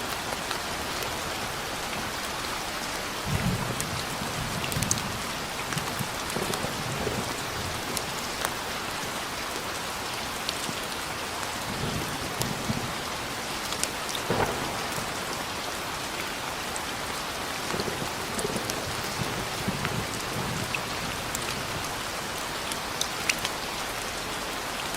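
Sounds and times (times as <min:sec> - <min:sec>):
heavy rain: 0:00.0 - 0:24.9
low rumbles of thunder: 0:03.2 - 0:08.5, 0:14.2 - 0:15.7, 0:17.7 - 0:22.2.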